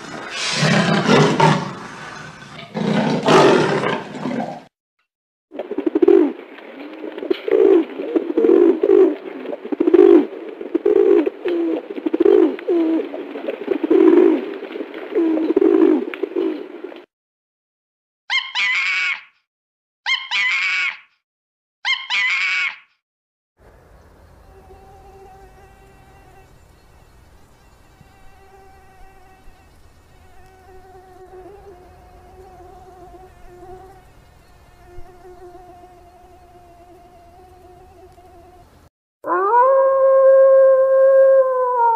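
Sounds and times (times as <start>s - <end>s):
monkey calls: 18.3s - 19.4s, 20.1s - 21.1s, 21.8s - 22.9s
swarm of insects buzzing: 24.3s - 38.8s.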